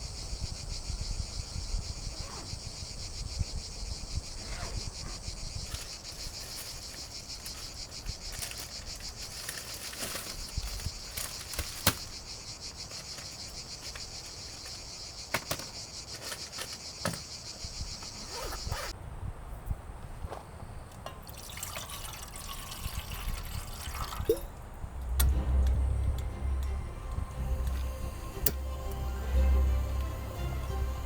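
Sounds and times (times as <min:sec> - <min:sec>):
insects trilling: 0:00.0 - 0:19.0, 0:20.6 - 0:31.0
handling clicks and knocks: 0:12.9 - 0:18.9.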